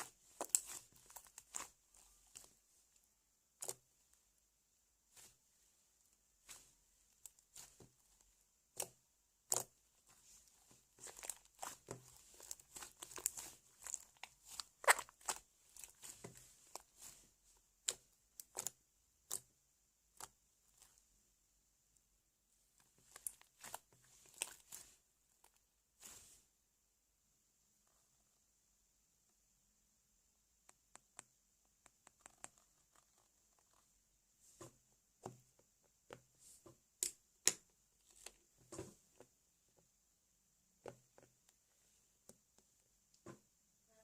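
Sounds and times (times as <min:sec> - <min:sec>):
slime crackling and popping: 0:00.0 - 0:02.5, 0:10.9 - 0:17.2, 0:17.8 - 0:19.5.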